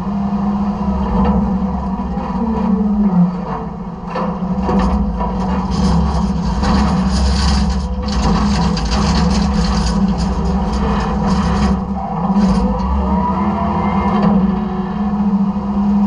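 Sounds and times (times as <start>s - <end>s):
truck engine and hydraulics drone: 0.0s - 16.0s
trash crackling and crunching: 3.4s - 13.0s.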